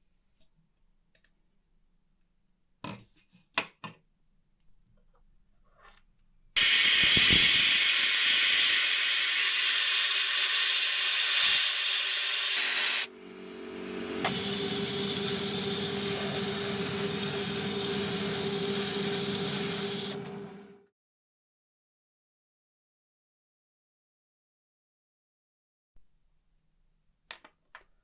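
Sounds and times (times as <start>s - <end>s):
loud hiss of rushing air: 6.6s - 13.1s.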